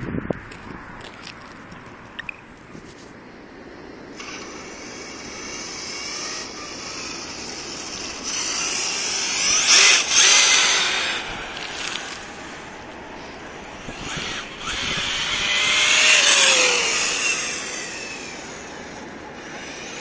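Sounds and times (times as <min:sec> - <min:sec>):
electric motor whine of rc truck: 0:04.0 - 0:20.0.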